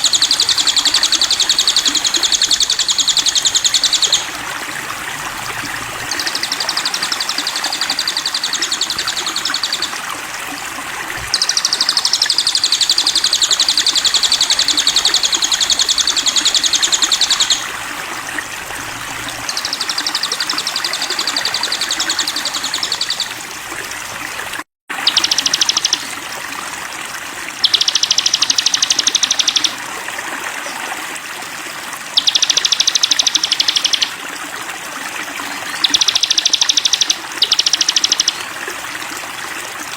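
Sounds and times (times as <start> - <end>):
bird singing buzzy trill: 0.0 - 4.5, 5.8 - 10.0, 11.2 - 17.8, 18.9 - 23.4, 25.0 - 26.1, 27.6 - 29.7, 32.2 - 34.2, 35.6 - 38.4
running water: 0.0 - 39.9.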